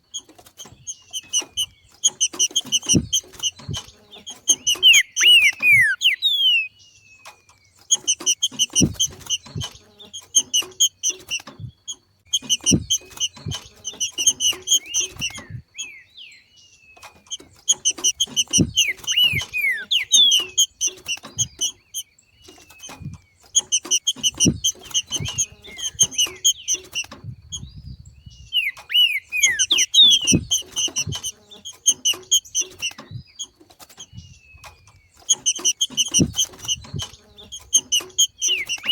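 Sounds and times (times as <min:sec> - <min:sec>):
bird rapid chattering call: 0:00.6 - 0:06.8, 0:07.9 - 0:11.5, 0:12.3 - 0:16.3, 0:17.0 - 0:38.9
downward-slurred whistles: 0:04.6 - 0:06.8, 0:18.5 - 0:20.7, 0:28.5 - 0:30.6
dull low knocks: 0:12.4 - 0:15.7.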